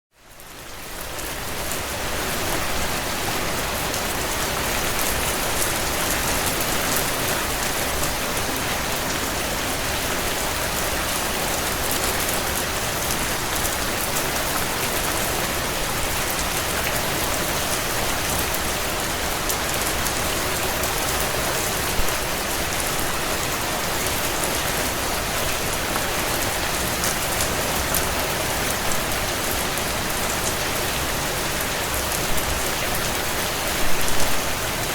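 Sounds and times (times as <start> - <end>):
heavy rain on a tin roof: 0.1 - 34.9.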